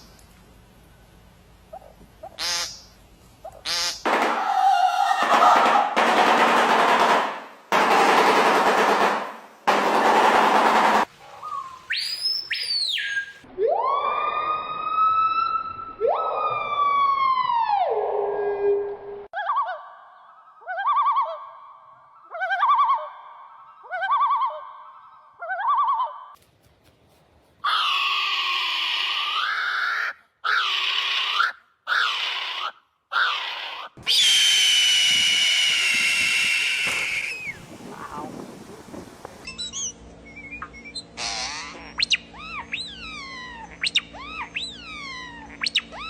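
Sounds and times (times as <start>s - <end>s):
bird calls: 11.3s - 13.4s, 39.4s - 46.0s
long steady-pitched bird call: 11.4s - 13.5s, 39.4s - 46.0s
siren-like wailing: 13.5s - 18.9s.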